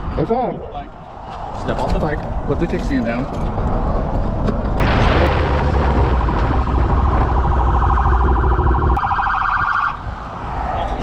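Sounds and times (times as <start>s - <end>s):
low rumble: 4.8s - 9.0s
police siren: 5.8s - 10.1s.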